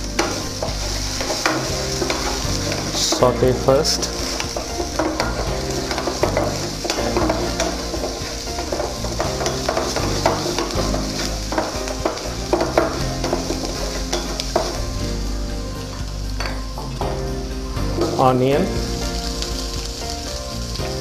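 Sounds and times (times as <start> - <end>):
utensil scraping and knocking pan: 0.0 - 15.0
garlic sizzling in hot oil: 0.0 - 21.0.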